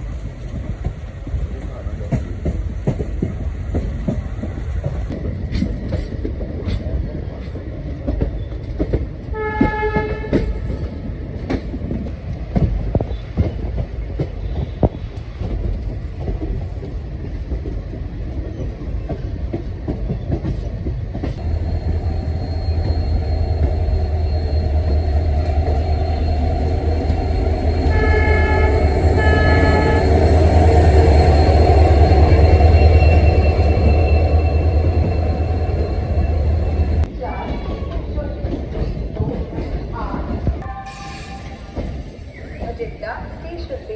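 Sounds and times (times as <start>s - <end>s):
train clanking and clicking: 0.0s - 43.9s
diesel engine deep rumble: 21.4s - 37.1s
locomotive horn blasts: 21.4s - 37.1s.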